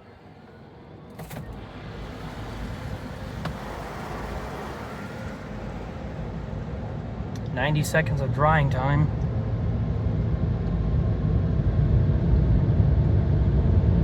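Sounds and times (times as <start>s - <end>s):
car wash air dryers blowing: 0.0s - 10.3s.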